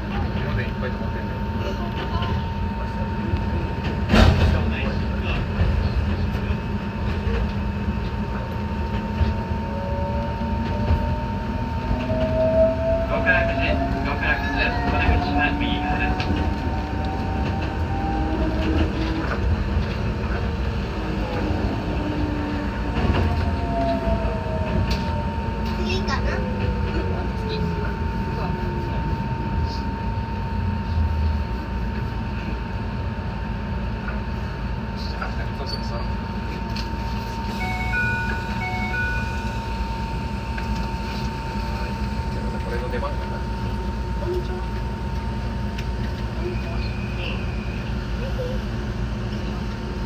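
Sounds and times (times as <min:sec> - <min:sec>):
train rumbling: 0:00.0 - 0:50.0
faint high tone: 0:37.5 - 0:39.7.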